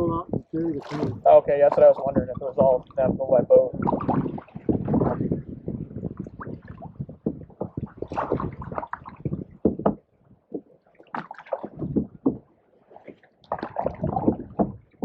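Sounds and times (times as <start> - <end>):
paddles splashing in water: 0.6 - 3.1, 3.7 - 15.0
sharp knocks: 9.6 - 10.7, 11.6 - 12.5.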